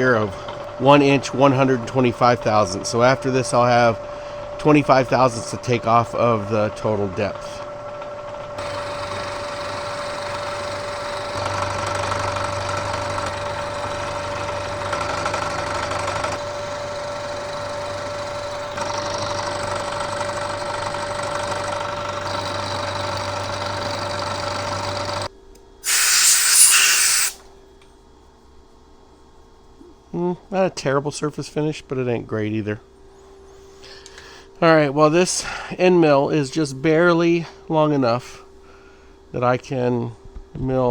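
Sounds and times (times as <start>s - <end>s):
milling machine whining: 0.0s - 27.4s
loud hiss: 25.8s - 27.4s.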